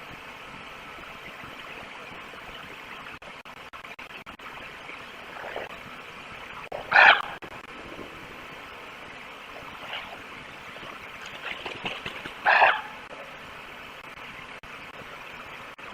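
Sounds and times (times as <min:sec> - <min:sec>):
microphone hiss: 0:00.0 - 0:15.9
wolf calling: 0:06.8 - 0:07.4, 0:12.4 - 0:13.1.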